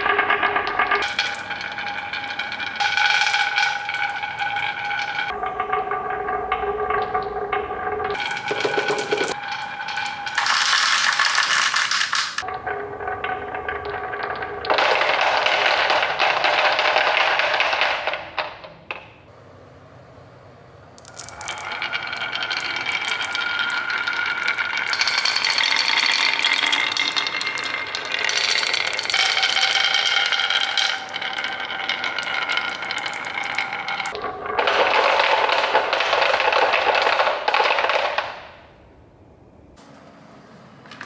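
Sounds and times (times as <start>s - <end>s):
marbles rolling on a marble run: 0.0s - 5.4s, 8.0s - 12.5s, 13.2s - 18.7s, 21.0s - 38.5s.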